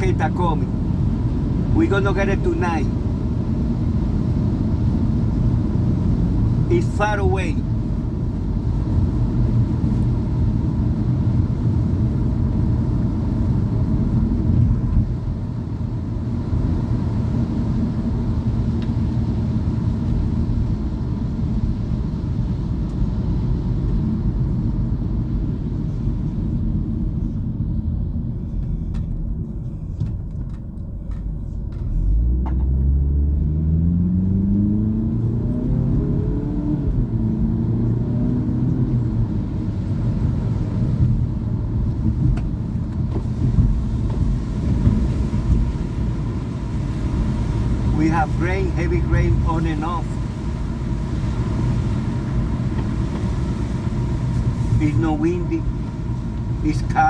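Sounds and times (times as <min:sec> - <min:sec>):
car engine: 0:00.0 - 0:57.0
road rumble on wet road: 0:00.0 - 0:57.0
engine accelerating: 0:30.0 - 0:42.1.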